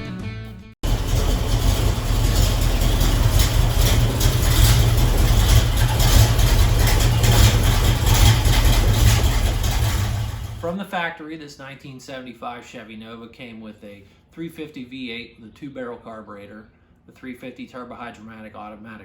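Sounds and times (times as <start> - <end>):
car engine low rumble: 0.8 - 10.7.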